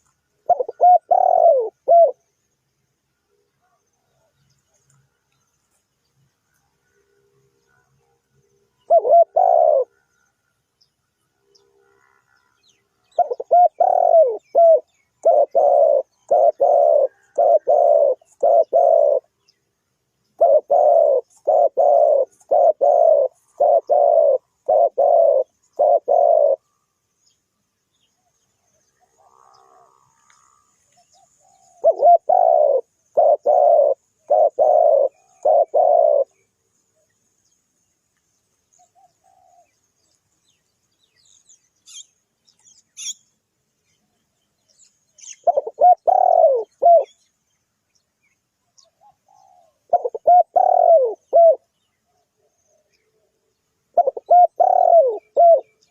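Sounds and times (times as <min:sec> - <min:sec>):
dove cooing: 0:00.0 - 0:02.3, 0:08.8 - 0:10.2, 0:13.1 - 0:19.4, 0:20.4 - 0:26.8, 0:29.0 - 0:36.5, 0:38.8 - 0:39.8, 0:45.2 - 0:47.2, 0:48.8 - 0:55.9.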